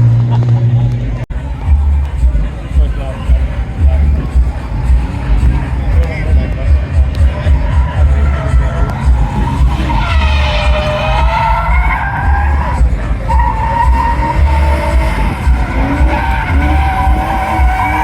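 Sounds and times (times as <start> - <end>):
car engine throbbing: 0.0 - 18.0
tyres squealing: 7.2 - 18.0.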